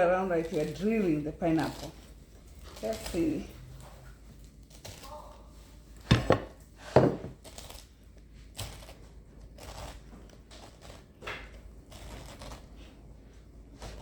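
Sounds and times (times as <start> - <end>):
blade crunching through fruit: 0.0 - 6.0, 6.8 - 14.0.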